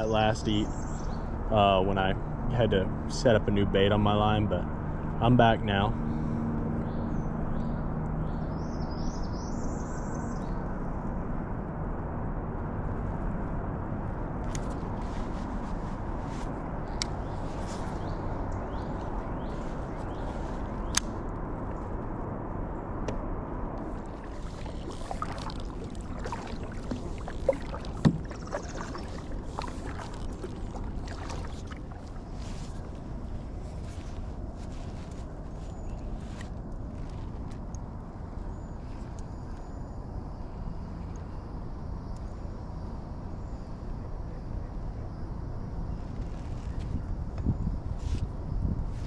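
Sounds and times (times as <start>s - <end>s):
steady low water noise: 0.0s - 46.3s
songbird chirping: 16.3s - 21.2s, 23.8s - 37.5s.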